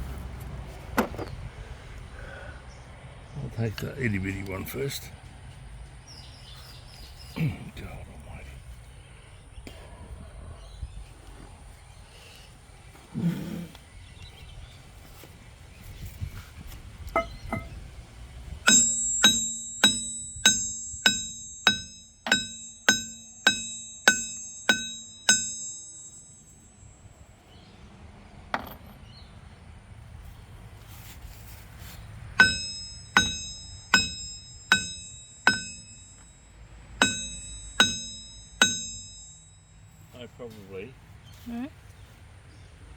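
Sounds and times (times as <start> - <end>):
dull thump: 0.9 - 1.4
hammer ringing on steel sprocket: 17.2 - 17.8, 18.6 - 27.2, 32.4 - 40.2.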